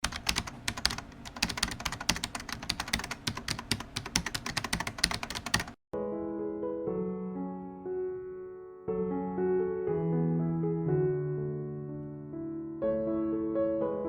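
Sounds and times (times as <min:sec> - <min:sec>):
keyboard typing clicks: 0:00.0 - 0:05.8
piano music: 0:04.5 - 0:14.0.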